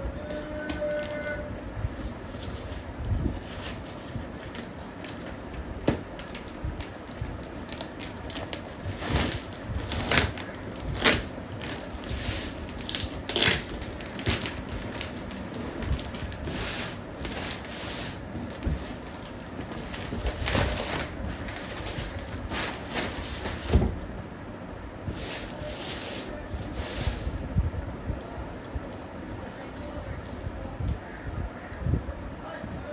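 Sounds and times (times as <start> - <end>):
packaging crinkling and rustling: 0.0 - 24.1.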